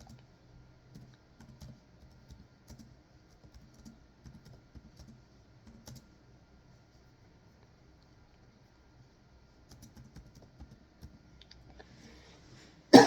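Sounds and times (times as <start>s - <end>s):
typing on computer keyboard: 0.9s - 6.1s, 9.6s - 11.2s.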